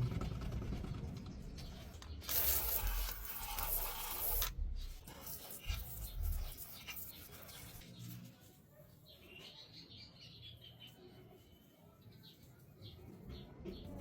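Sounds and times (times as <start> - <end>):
hissing water spray: 2.2 - 4.5
rubbing and scrubbing: 2.3 - 8.6.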